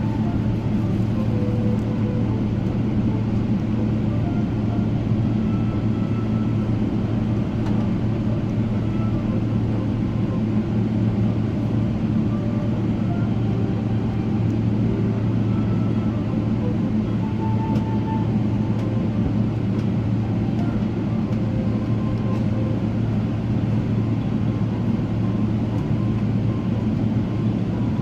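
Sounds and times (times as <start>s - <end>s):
aircraft cabin engine drone: 0.0s - 28.0s.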